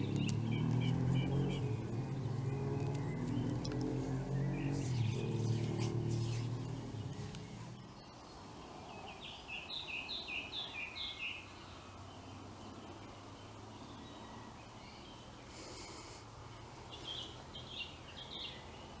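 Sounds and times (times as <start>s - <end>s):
low hum: 0.0s - 8.0s.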